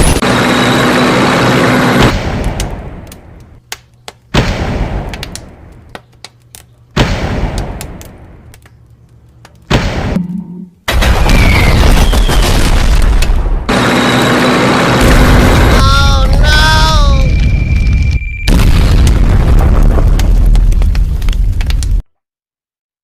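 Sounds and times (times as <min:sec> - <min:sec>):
loud steady rumble: 0:00.0 - 0:03.5, 0:13.6 - 0:17.5
heavy booms: 0:18.4 - 0:21.6.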